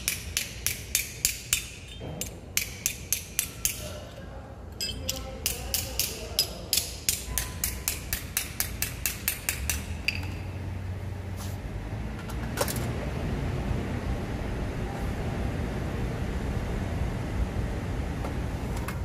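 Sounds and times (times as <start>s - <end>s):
hammer striking metal bracket: 0.0s - 4.0s, 4.8s - 10.4s
low steady rumble: 9.0s - 19.0s.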